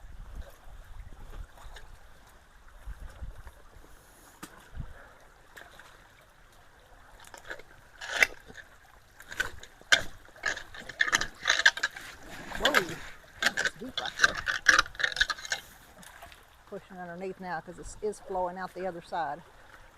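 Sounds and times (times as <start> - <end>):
water running through culvert: 0.0 - 19.9
debris knocking and scraping: 9.2 - 15.7.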